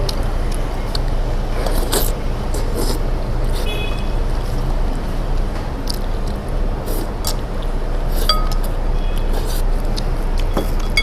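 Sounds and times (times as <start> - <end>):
tableware clinking: 8.3 - 8.7, 10.5 - 11.0.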